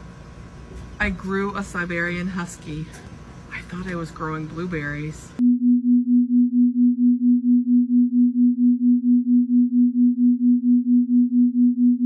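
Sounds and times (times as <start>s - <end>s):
pulsing low electronic tone: 5.4s - 12.0s.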